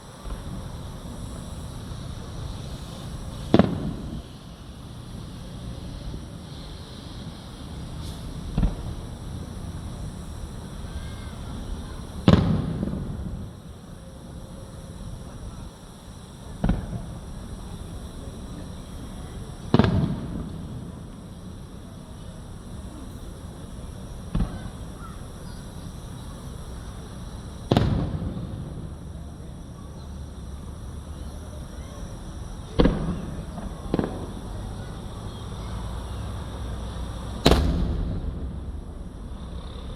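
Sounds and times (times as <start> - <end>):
fireworks booming: 0.0 - 39.9
loud boom with rumble: 36.1 - 39.9.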